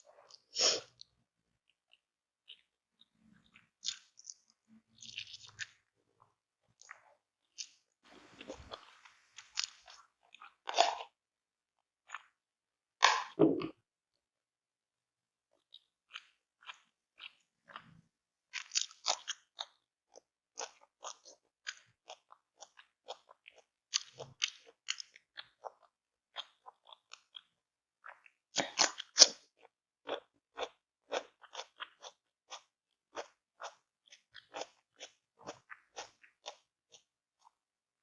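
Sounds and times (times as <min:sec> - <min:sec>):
person chewing crunchy food: 0:00.1 - 0:11.2, 0:12.0 - 0:12.4, 0:13.0 - 0:13.7, 0:15.6 - 0:37.6.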